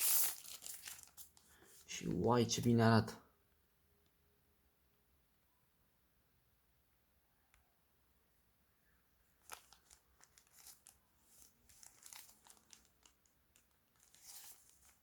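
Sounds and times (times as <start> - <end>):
plastic packaging crinkling: 0.0 - 1.7, 9.4 - 15.0.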